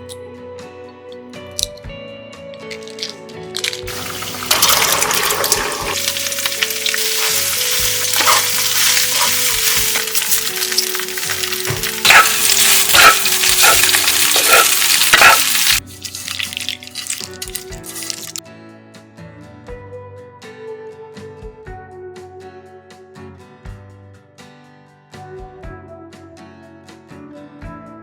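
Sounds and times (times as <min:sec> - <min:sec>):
background music: 0:00.0 - 0:23.0
food sizzling in a hot pan: 0:02.7 - 0:18.4
stirring strokes in a pan: 0:03.6 - 0:18.4.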